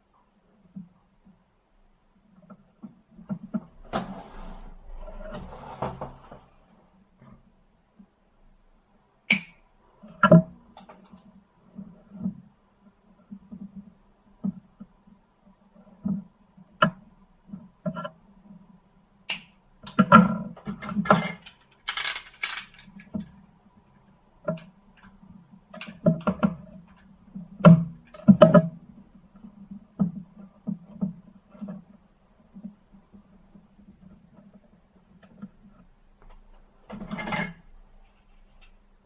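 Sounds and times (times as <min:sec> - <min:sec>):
scraping rustle: 0:03.7 - 0:06.7
metal parts and tools clinking: 0:21.4 - 0:23.0.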